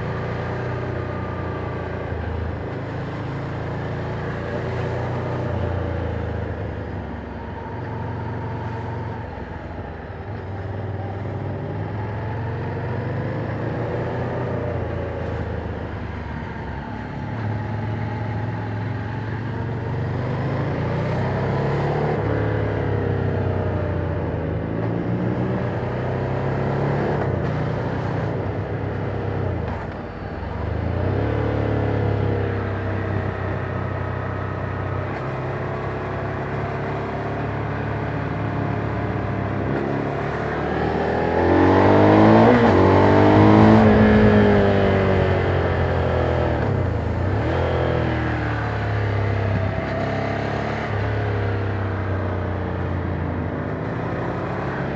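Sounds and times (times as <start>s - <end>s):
motorcycle engine revving: 24.8s - 54.9s.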